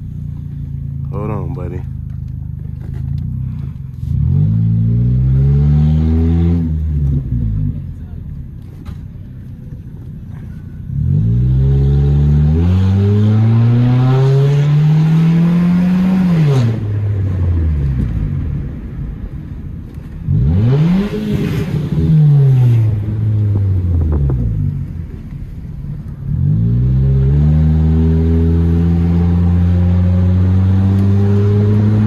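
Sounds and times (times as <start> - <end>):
turbocharged car engine revving: 2.8 - 7.9, 10.3 - 18.8, 20.2 - 32.0.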